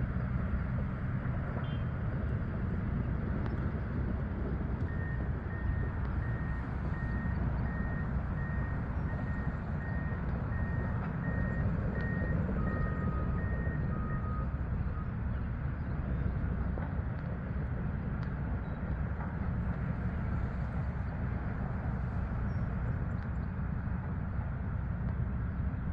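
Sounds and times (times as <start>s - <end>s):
heavy machinery engine running: 0.0s - 25.9s
reversing alarm beeping: 4.8s - 15.1s.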